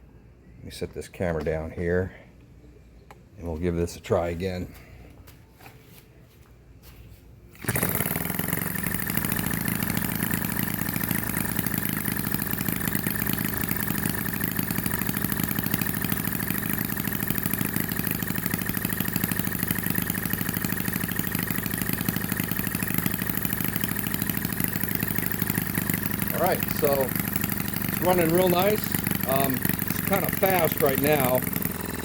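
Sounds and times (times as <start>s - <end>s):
model engine running with rapid beat: 7.6s - 32.0s.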